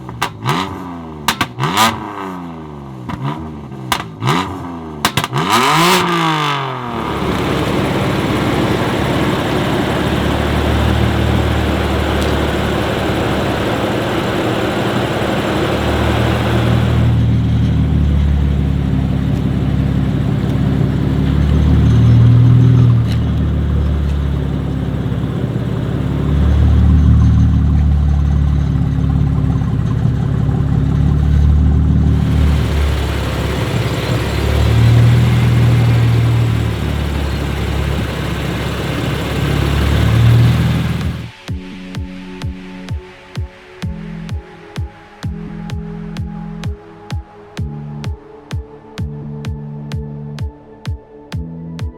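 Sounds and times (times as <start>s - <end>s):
car engine revving: 0.0s - 41.5s
loud hiss: 32.2s - 41.4s.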